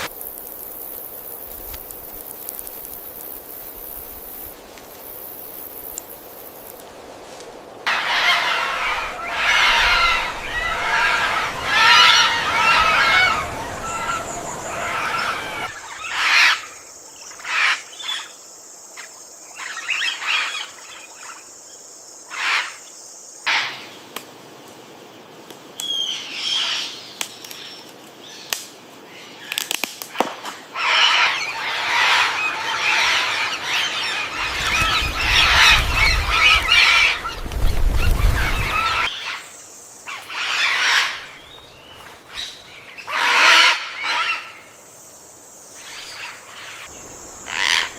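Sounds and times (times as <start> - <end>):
birds chirping and squawking: 7.9 - 16.7, 30.8 - 39.5, 40.1 - 44.8, 45.8 - 47.9.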